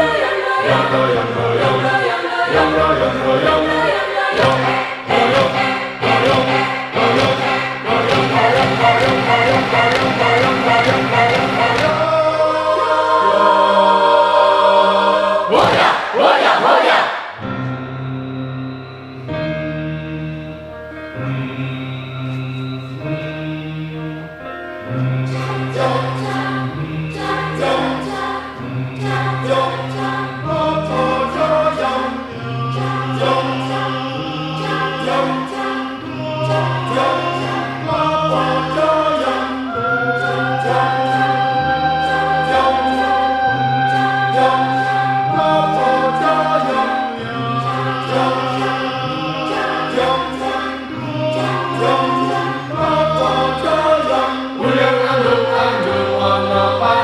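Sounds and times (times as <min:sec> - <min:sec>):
choir singing in harmony: 0:00.0 - 0:57.0
low bass line: 0:02.5 - 0:12.4.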